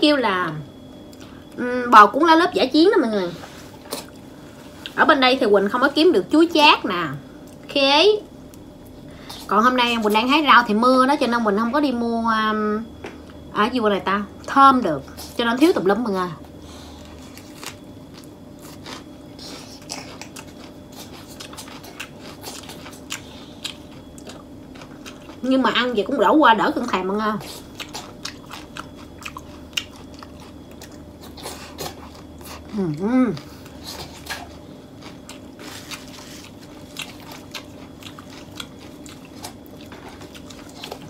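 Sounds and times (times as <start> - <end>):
chewing with wet clicks and crackles: 0.5 - 1.6, 3.8 - 5.0, 7.4 - 7.8, 8.4 - 10.2, 17.0 - 25.9, 26.8 - 32.8, 33.4 - 41.0
lettuce leaves crinkling: 17.2 - 19.0.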